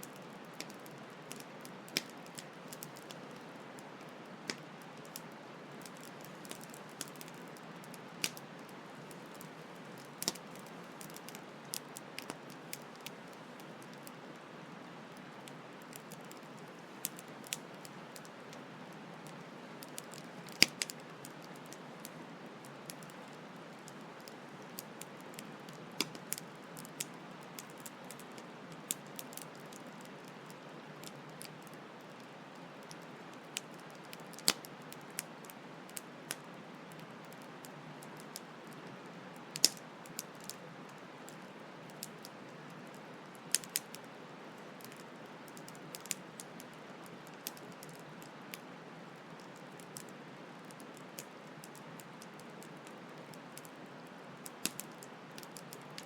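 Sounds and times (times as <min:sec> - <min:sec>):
campfire crackling and popping: 0:00.0 - 0:48.4, 0:49.3 - 0:53.8, 0:54.4 - 0:56.0.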